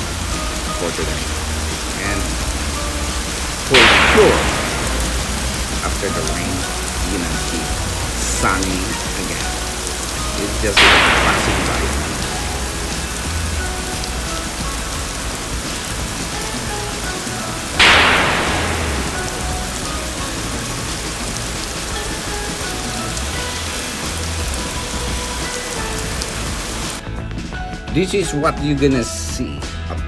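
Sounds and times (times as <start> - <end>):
heavy rain on pavement: 0.0 - 27.0
loud crash: 2.7 - 24.3.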